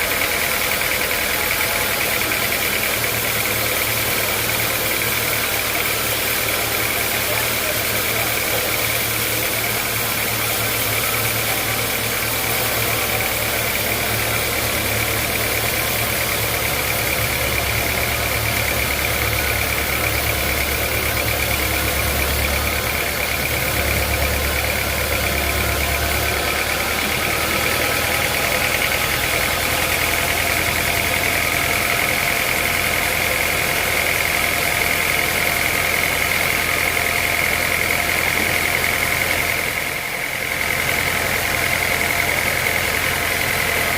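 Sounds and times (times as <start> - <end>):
band saw whining: 0.0 - 43.9
low motor hum: 1.3 - 35.8.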